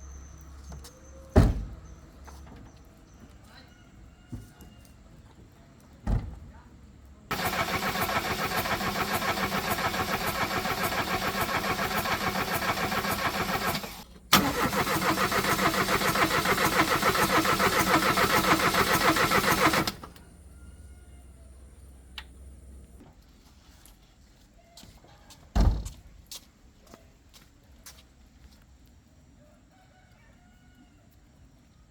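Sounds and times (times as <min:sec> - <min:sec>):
car engine cranking: 0:07.3 - 0:20.4.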